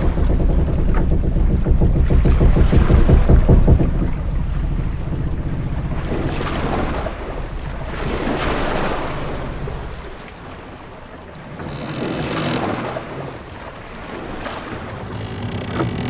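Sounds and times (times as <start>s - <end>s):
heavy low rumble: 0.0s - 10.5s, 14.9s - 16.0s
sea waves washing against ship: 0.0s - 16.0s.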